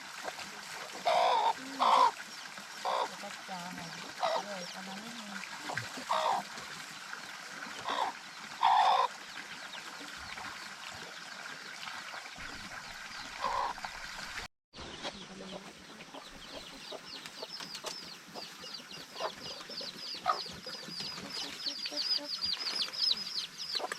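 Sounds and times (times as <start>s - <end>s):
chickens clucking: 0.2s - 2.2s, 2.8s - 5.0s, 5.7s - 6.6s, 7.8s - 9.1s, 15.0s - 23.9s.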